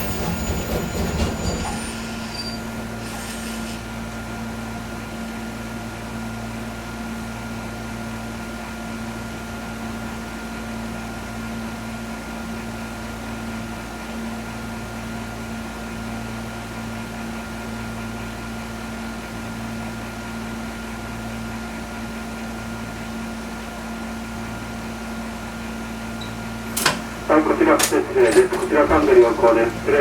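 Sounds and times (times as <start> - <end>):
train electrical hum: 0.0 - 6.2, 23.8 - 30.0.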